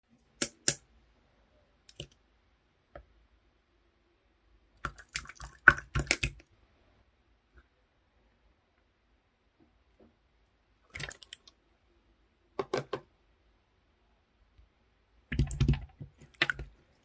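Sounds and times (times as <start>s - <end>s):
slime clicking and crackling: 4.8s - 6.4s.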